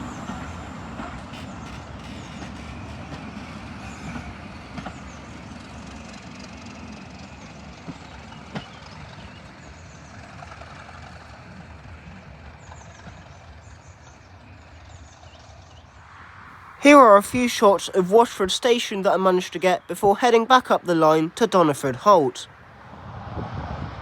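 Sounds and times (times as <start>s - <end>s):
diesel locomotive engine rumbling: 0.0s - 15.2s.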